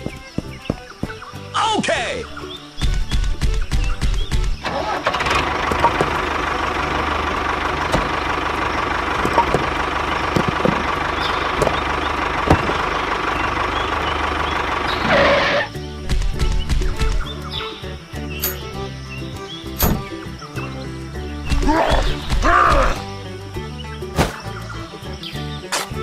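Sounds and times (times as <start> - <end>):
small engine whining: 4.6 - 23.7.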